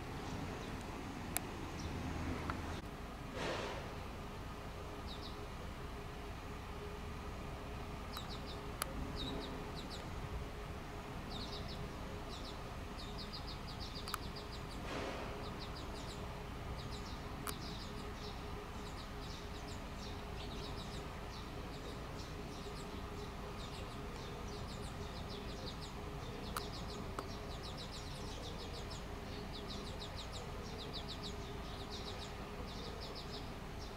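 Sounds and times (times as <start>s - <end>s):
small birds trilling: 0.0s - 2.8s, 3.5s - 33.9s
low background hum: 0.0s - 33.9s
sharp clicks: 14.0s - 14.3s, 17.4s - 17.7s.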